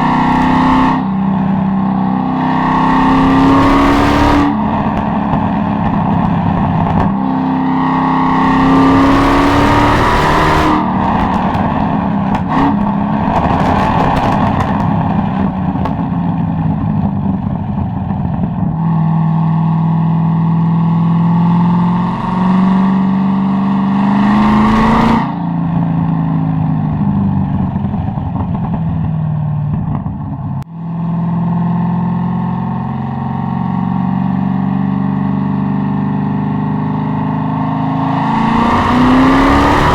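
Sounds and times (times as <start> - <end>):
car engine revving: 0.0 - 28.8, 29.7 - 39.9
exhaust crackles and pops: 3.1 - 7.3, 9.1 - 19.1, 26.8 - 30.7.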